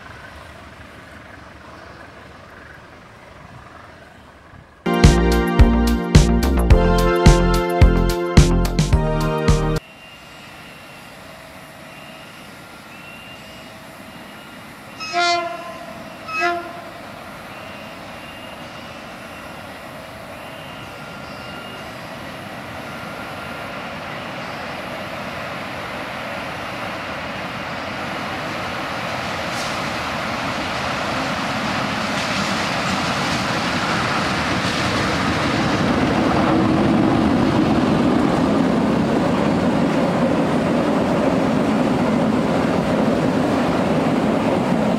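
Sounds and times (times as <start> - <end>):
freight train passing: 0.0 - 44.9
locomotive horn blasts: 15.0 - 16.9.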